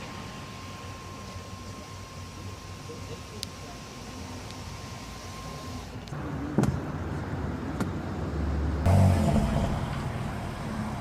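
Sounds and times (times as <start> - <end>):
car engine rumbling: 6.1 - 11.0.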